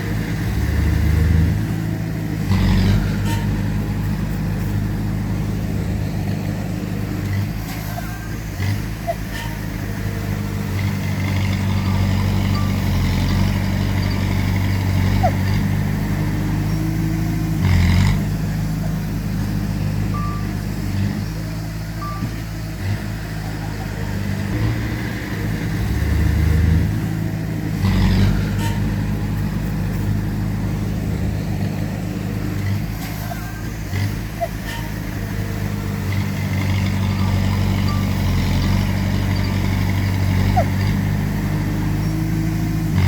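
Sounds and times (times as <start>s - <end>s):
heavy machinery diesel engines: 0.0s - 43.0s.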